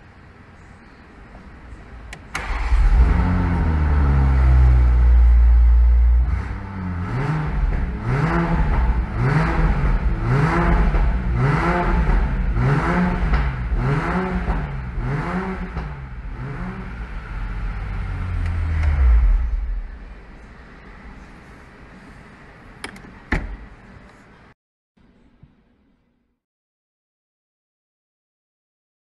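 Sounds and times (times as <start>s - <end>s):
low engine rumble: 0.0s - 25.4s
car engine revving: 2.4s - 20.0s.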